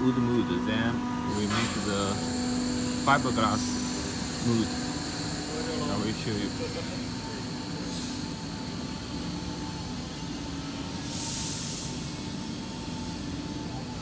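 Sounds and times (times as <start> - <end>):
factory machinery hum: 0.0 - 14.0
burst of hiss: 11.0 - 12.2.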